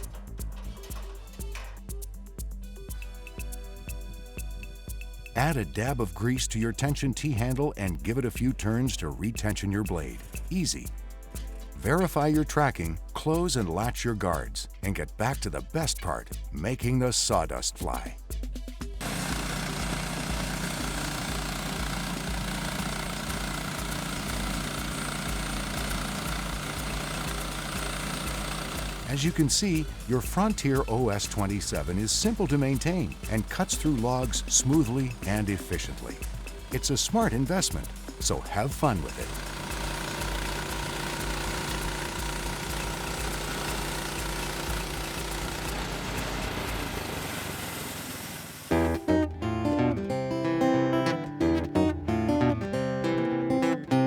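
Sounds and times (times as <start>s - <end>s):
sawmill cutting log: 19.0s - 49.0s.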